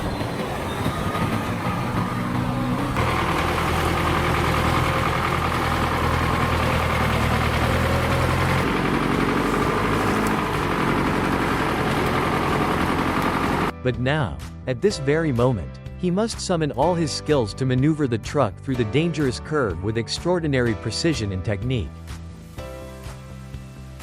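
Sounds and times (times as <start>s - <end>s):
truck diesel engine under load: 0.0s - 13.7s.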